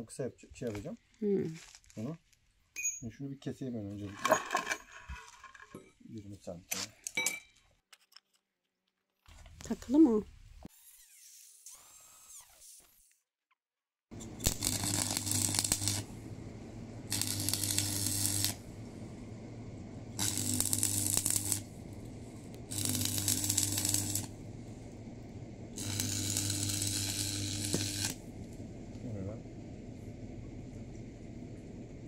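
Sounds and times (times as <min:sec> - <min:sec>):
welder buzzing hum: 0:14.1 - 0:29.1
welding arc crackling: 0:14.2 - 0:28.8.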